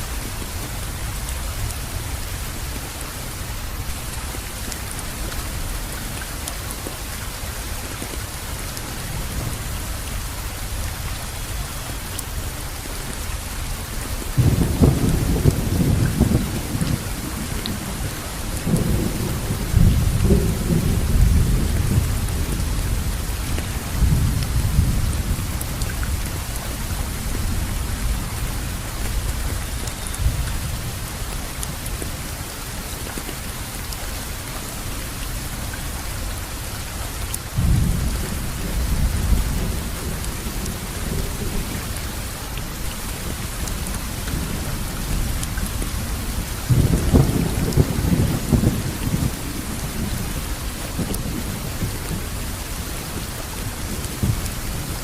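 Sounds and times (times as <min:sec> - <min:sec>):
rain hissing: 0:00.0 - 0:55.0
rolling thunder: 0:14.4 - 0:29.6, 0:37.5 - 0:41.8, 0:46.1 - 0:52.3.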